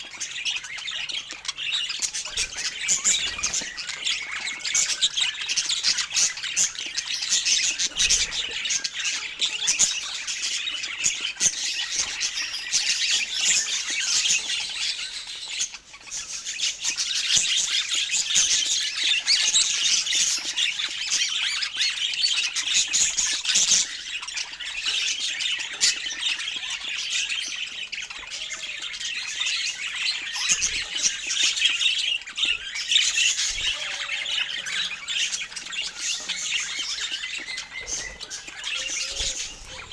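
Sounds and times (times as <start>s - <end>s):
parakeets chattering and chirping: 0.0s - 39.9s
shrill squawks: 32.4s - 39.9s.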